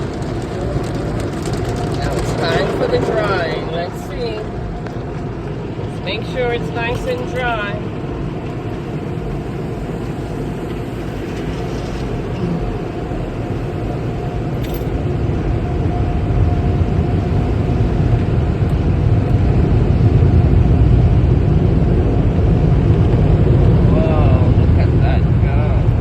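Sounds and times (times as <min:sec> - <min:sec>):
car wash air blowers rushing: 0:05.5 - 0:26.0.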